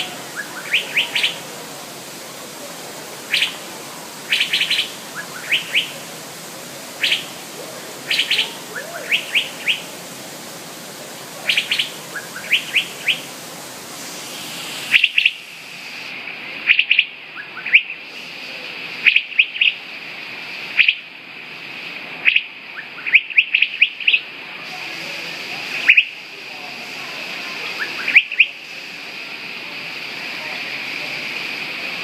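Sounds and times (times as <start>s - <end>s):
bird chirping: 3.3s - 3.6s, 4.3s - 6.0s, 7.0s - 7.3s, 8.1s - 9.8s, 11.5s - 13.3s.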